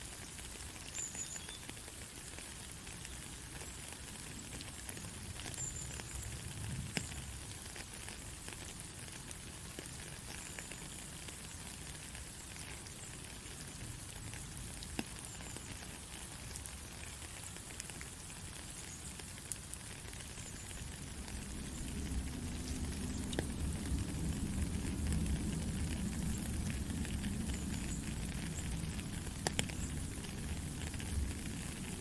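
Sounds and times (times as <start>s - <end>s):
heavy rain hissing: 15.9s - 32.0s.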